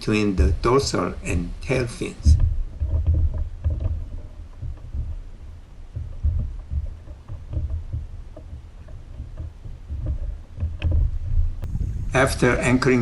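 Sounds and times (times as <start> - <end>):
water rumbling: 0.0 - 13.0
wind: 0.0 - 13.0
light knocks: 2.2 - 11.8.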